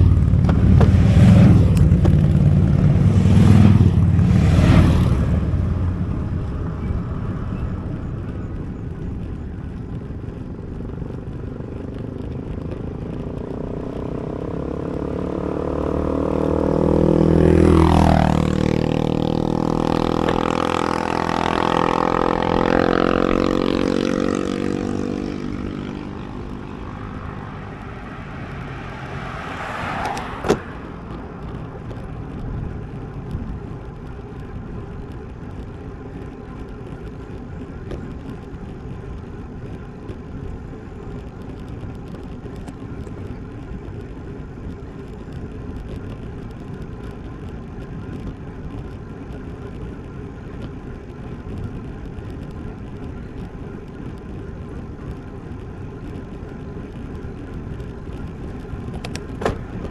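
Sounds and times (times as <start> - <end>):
vehicle engine passing by: 0.0 - 8.3, 13.6 - 32.4
wind rumbling on microphone: 0.0 - 59.9.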